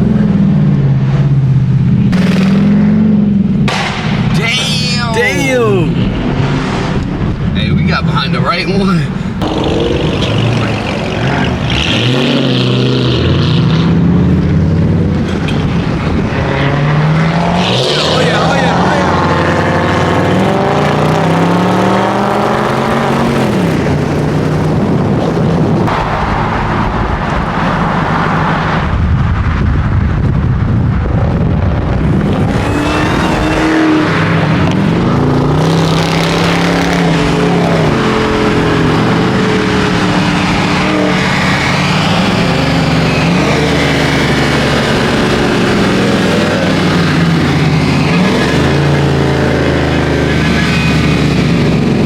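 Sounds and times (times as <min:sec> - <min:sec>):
car engines revving: 0:00.0 - 0:30.1, 0:31.3 - 0:52.0
road noise: 0:00.0 - 0:52.0.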